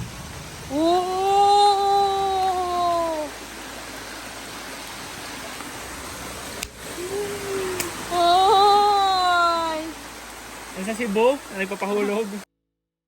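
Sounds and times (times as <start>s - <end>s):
small waterfall rushing: 0.0s - 12.5s
person saying ooh: 0.7s - 3.4s, 6.9s - 9.9s.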